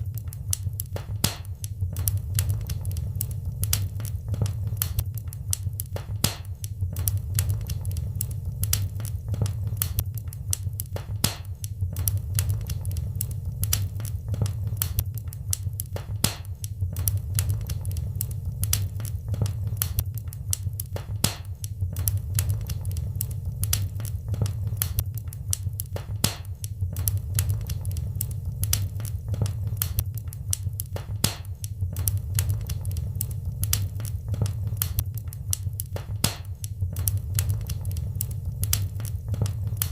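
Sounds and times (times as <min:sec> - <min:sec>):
wood fire crackling: 0:00.0 - 0:39.9
low steady rumble: 0:01.8 - 0:05.7, 0:06.8 - 0:10.7, 0:11.8 - 0:16.0, 0:16.8 - 0:21.0, 0:21.8 - 0:25.7, 0:26.8 - 0:31.0, 0:31.8 - 0:35.7, 0:36.8 - 0:39.9.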